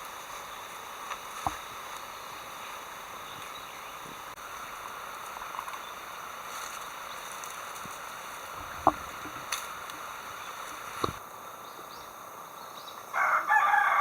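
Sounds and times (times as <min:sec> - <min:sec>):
steady outdoor hiss: 0:00.0 - 0:14.0
rooster crowing: 0:13.1 - 0:14.0.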